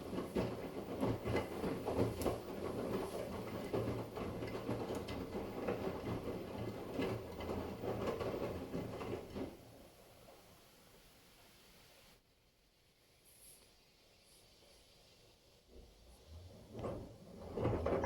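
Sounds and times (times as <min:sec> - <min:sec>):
washing machine drum tumbling: 0:16.7 - 0:18.0.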